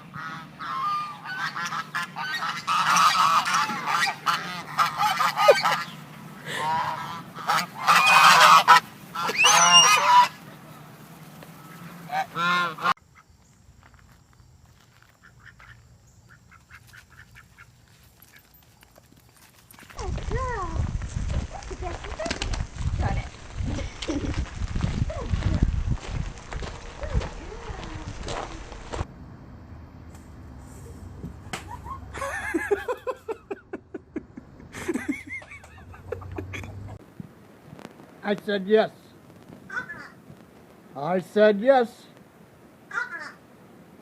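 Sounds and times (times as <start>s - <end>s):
birds honking calls: 0.0s - 13.3s, 39.6s - 40.3s.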